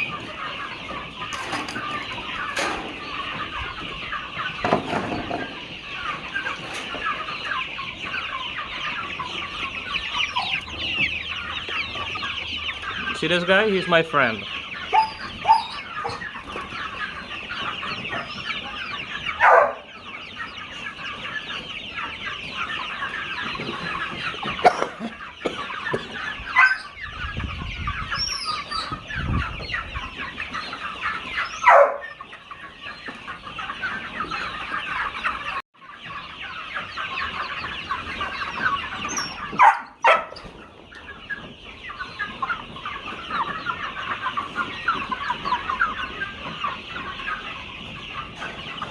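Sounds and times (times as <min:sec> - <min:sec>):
chickens clucking: 0:00.0 - 0:48.9.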